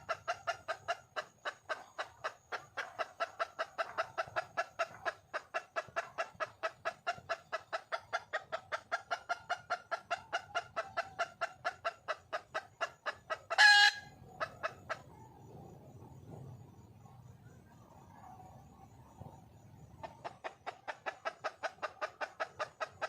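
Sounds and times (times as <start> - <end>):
hen clucking: 0.0 - 15.4, 19.9 - 23.0
loud harsh hen call: 13.3 - 14.6.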